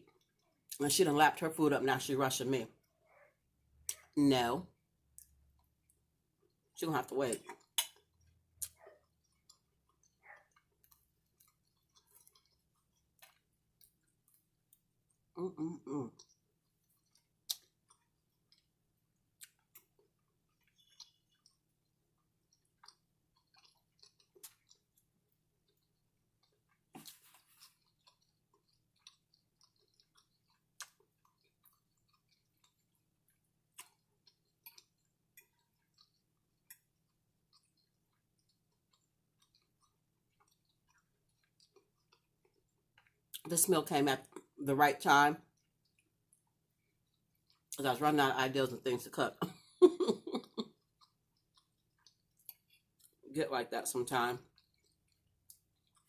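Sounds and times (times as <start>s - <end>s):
faint chewing: 0.0s - 0.8s, 2.7s - 43.5s, 44.2s - 44.6s, 45.4s - 47.8s, 49.4s - 53.3s, 54.4s - 56.0s
soft mouth clicks: 17.1s - 18.0s.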